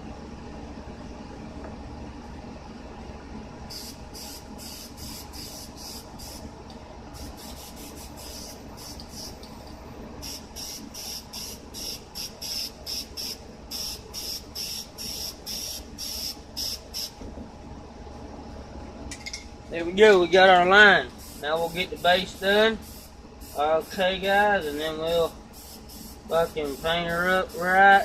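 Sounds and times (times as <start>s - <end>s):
spray paint can hissing bursts: 3.7s - 6.5s, 7.2s - 9.5s, 10.2s - 17.2s, 21.2s - 27.8s.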